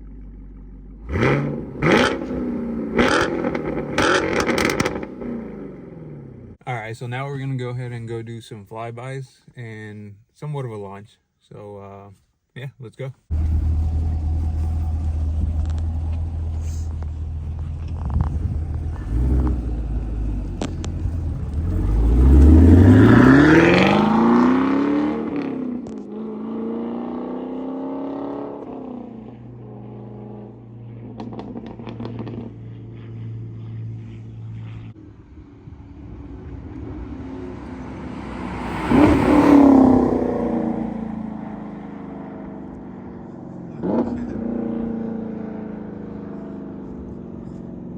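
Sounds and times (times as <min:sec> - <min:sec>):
car engine idling and revving: 0:00.0 - 0:06.6, 0:13.3 - 0:47.9
car passing by loudly: 0:33.2 - 0:43.1.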